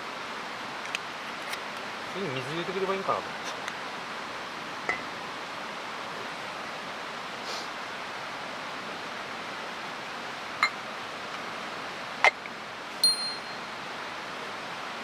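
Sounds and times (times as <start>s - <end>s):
mountain stream rushing: 0.0s - 15.0s
sharp metal clinks: 13.0s - 13.7s.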